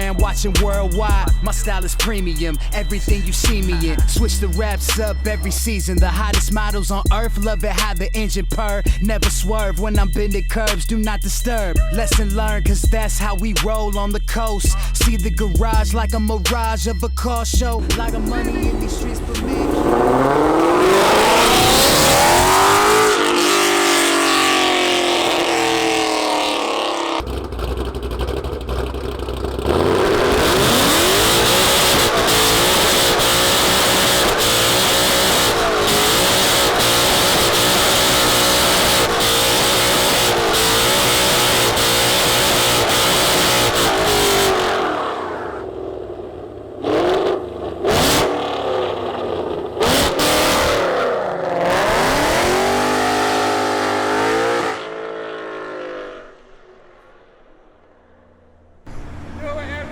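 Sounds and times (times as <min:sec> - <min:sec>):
car engine revving hard: 0:00.0 - 0:06.8, 0:17.6 - 0:46.2, 0:46.8 - 0:56.4.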